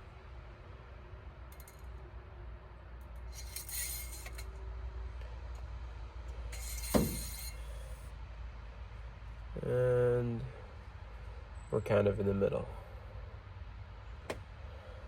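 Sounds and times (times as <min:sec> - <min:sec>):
dipstick scraping in tube: 0:06.6 - 0:08.0.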